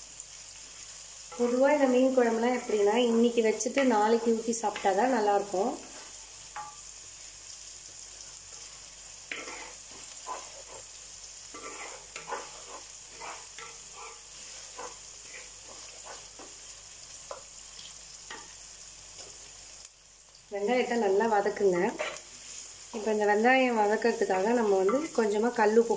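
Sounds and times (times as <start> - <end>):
vegetables sizzling in hot oil: 0.0 - 25.9
spatula scraping clay pot: 11.6 - 16.3.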